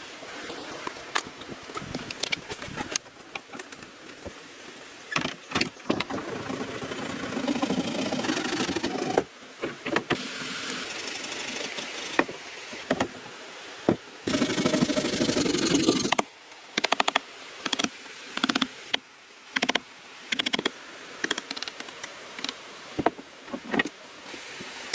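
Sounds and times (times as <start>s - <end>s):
scraping bamboo: 5.9s - 12.9s, 14.3s - 16.2s
knocks and clacks on bamboo: 16.8s - 18.7s, 19.6s - 24.0s.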